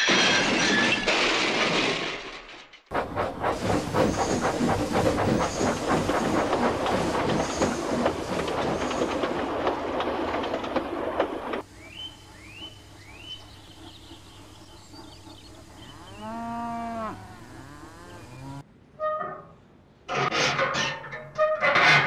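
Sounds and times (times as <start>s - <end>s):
train wheels clattering over joints: 0.0s - 11.7s
rushing hiss: 3.0s - 9.4s.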